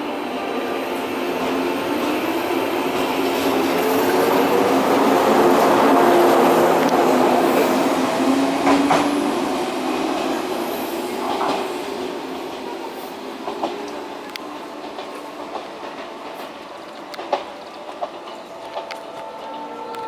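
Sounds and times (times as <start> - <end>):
wheels clicking over rail joints: 13.4 - 20.0.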